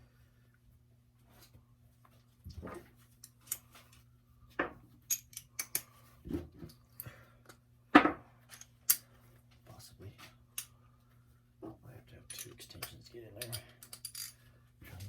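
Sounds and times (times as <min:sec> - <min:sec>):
metal hand tools clinking: 0:12.3 - 0:15.0.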